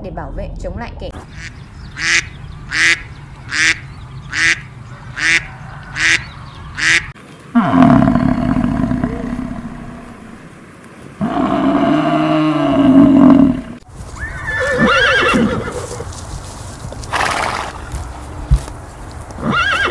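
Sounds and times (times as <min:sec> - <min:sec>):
cow mooing: 0:07.6 - 0:10.5, 0:11.2 - 0:13.8
horse snorting: 0:07.6 - 0:10.5, 0:11.2 - 0:13.8
horse whinnying: 0:11.2 - 0:16.0, 0:19.4 - 0:19.9.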